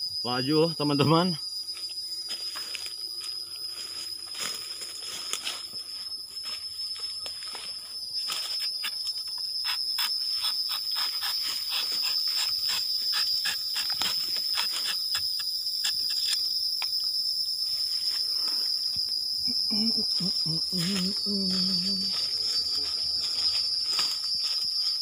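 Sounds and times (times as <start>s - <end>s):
high-pitched insect drone: 0.0s - 25.0s
knife scraping tree bark: 8.4s - 16.4s.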